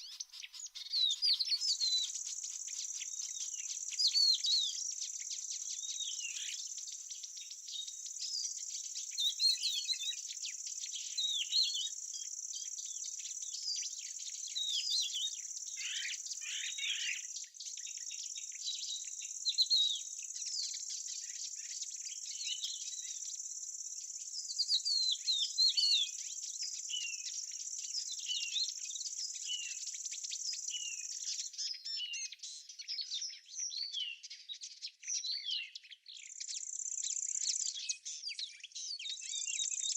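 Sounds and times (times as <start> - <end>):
insects trilling: 0.0 - 25.3
small birds chirping: 0.0 - 39.9.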